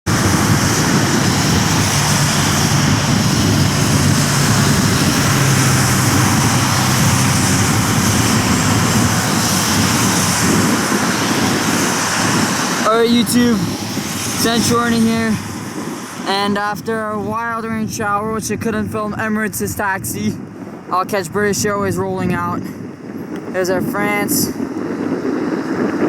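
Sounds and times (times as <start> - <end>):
jet engines roaring: 0.0 - 26.0
low hum: 0.1 - 12.8.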